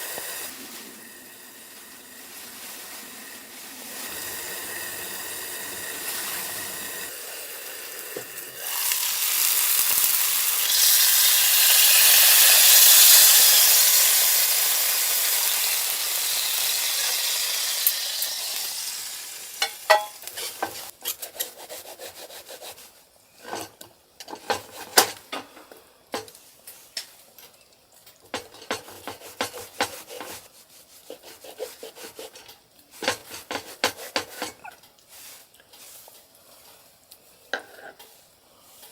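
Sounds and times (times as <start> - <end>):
food sizzling in a hot pan: 0.0 - 21.0, 32.9 - 36.2
utensil scraping a pan: 19.6 - 25.3, 28.4 - 36.8.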